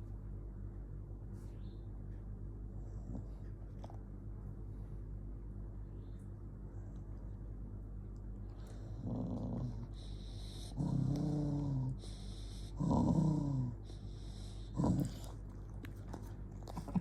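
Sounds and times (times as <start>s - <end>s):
dog growling: 8.6s - 17.0s.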